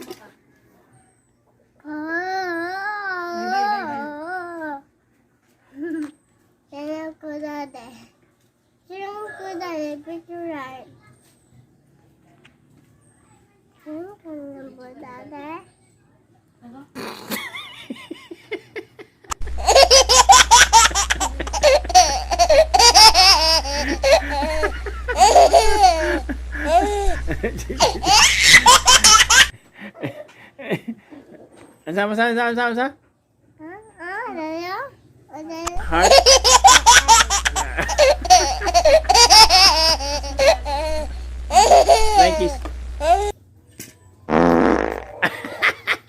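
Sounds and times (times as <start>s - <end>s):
child laughing: 17.3s - 29.5s, 35.7s - 43.3s
steady low hum: 19.4s - 29.9s, 35.7s - 43.3s.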